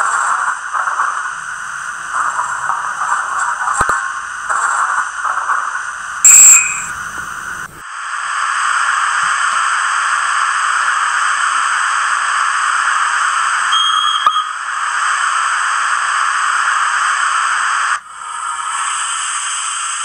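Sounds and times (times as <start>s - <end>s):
locomotive steam hiss from speaker: 0.0s - 6.3s, 14.8s - 20.0s
click with short tone: 6.3s - 7.3s, 13.7s - 14.5s.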